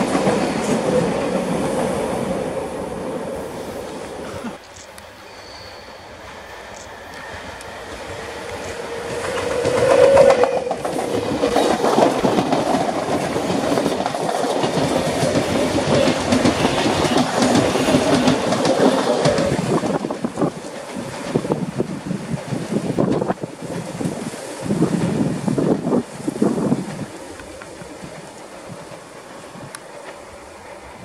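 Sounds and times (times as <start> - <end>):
electric train passing: 0.0 - 31.0
train cars rattling: 0.0 - 31.0
wheels clacking over rail joints: 7.2 - 30.2.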